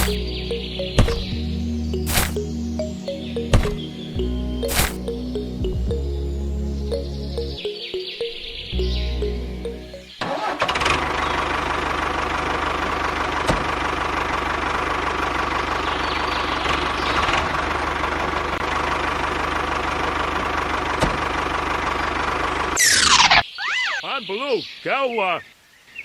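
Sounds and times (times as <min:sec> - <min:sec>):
small engine running: 0:10.3 - 0:23.0.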